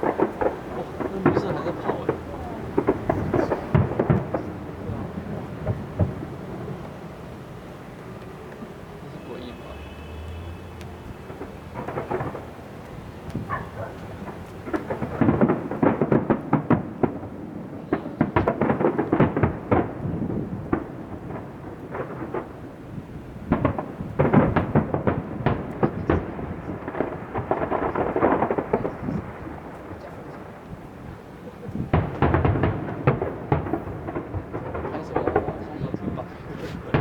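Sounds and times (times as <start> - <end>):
fireworks bangs and crackling: 0.0 - 37.0.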